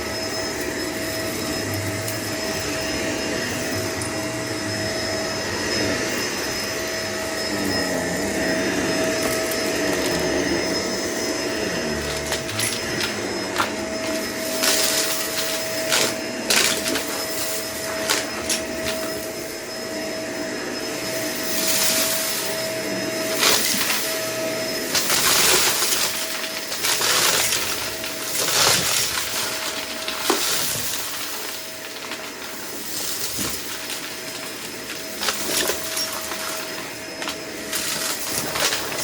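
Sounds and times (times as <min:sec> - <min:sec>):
vacuum cleaner running: 0:00.0 - 0:39.0
debris clicking through vacuum: 0:12.0 - 0:19.2, 0:24.9 - 0:39.0.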